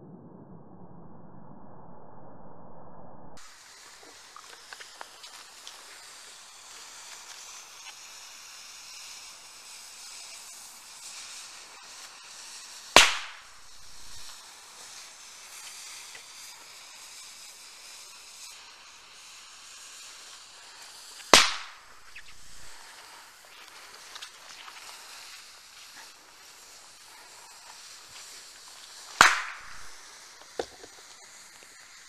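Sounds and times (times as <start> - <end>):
fuse hissing: 3.4 - 32.0
firecracker bangs: 12.9 - 14.4, 21.2 - 23.2, 29.0 - 31.1.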